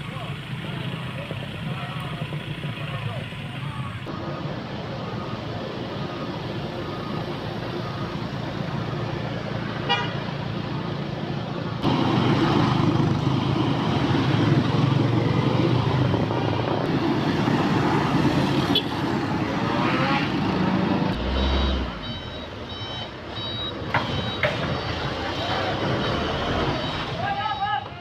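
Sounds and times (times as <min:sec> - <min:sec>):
road traffic: 0:00.0 - 0:28.0
truck engines running: 0:00.0 - 0:28.0
reversing beeper: 0:21.2 - 0:27.7.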